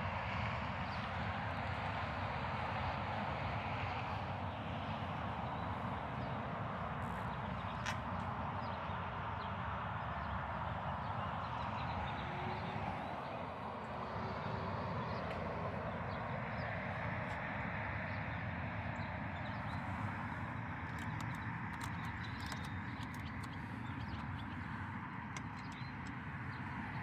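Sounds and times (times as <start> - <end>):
outdoor background noise: 0.0 - 27.0
light clicks: 19.7 - 26.8.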